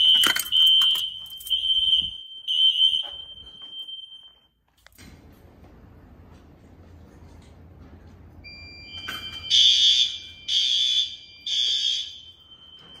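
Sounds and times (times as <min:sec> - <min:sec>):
fire alarm horn blasts: 0:00.0 - 0:04.5, 0:08.4 - 0:13.0.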